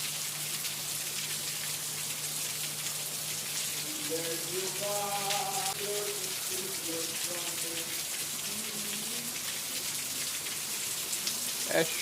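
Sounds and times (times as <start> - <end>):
rain pattering: 0.0 - 12.0
person speaking: 3.8 - 9.3.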